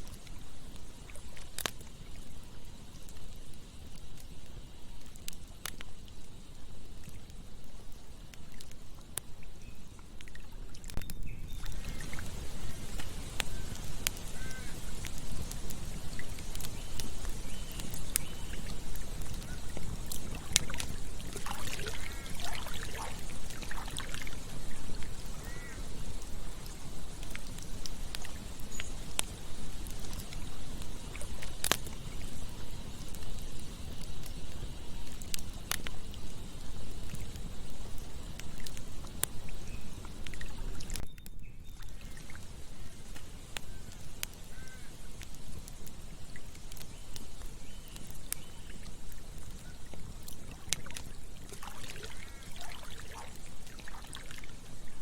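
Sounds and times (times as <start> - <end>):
flowing water: 0.0 - 41.0, 41.8 - 55.0
campfire crackling and popping: 0.0 - 55.0
bird chirping: 11.0 - 12.1.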